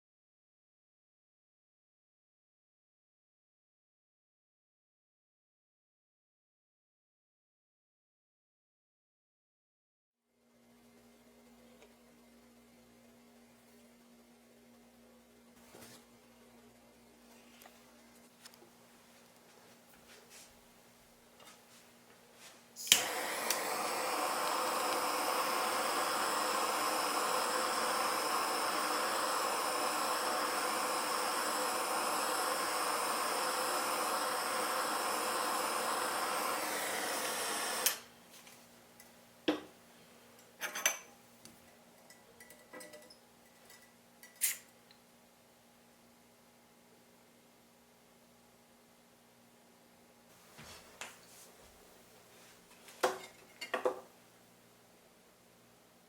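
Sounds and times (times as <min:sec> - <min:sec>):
gas torch hissing: 0:22.8 - 0:38.1
torch lighting click: 0:22.8 - 0:38.1.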